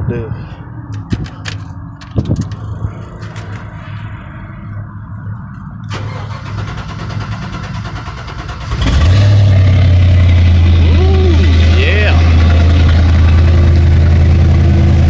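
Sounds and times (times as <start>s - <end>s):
engine idling loudly: 7.3s - 15.0s.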